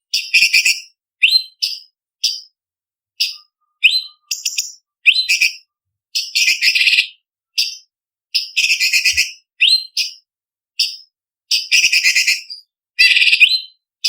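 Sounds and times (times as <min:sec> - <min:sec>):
bird whistling: 0:00.2 - 0:02.4, 0:03.2 - 0:07.8, 0:08.6 - 0:10.2, 0:11.5 - 0:13.8.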